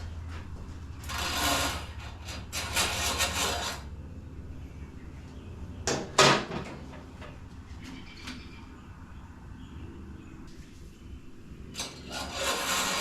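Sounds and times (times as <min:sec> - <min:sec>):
rustling or scraping: 0:00.0 - 0:03.9, 0:11.8 - 0:13.0
steady low hum: 0:00.0 - 0:06.2.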